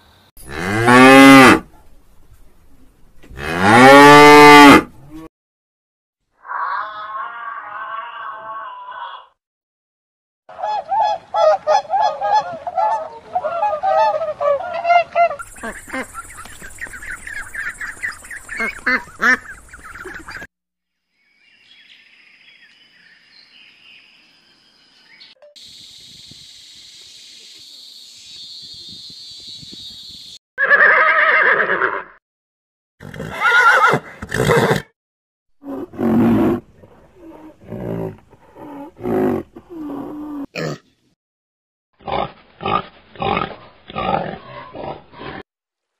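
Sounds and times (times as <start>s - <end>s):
animal calls: 10.6s - 20.5s.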